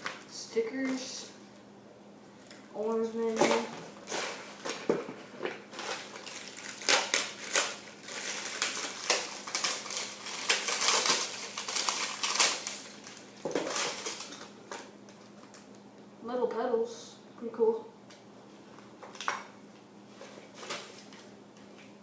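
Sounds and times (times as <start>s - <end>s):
packaging crinkling: 3.3s - 15.8s, 20.2s - 21.9s.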